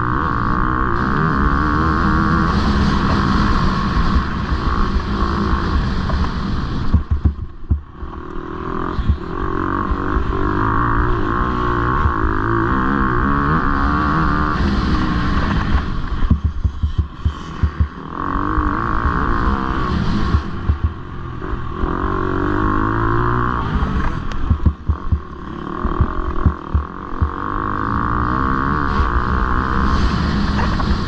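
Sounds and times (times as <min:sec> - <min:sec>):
motocross bike engine racing: 0:00.0 - 0:31.0.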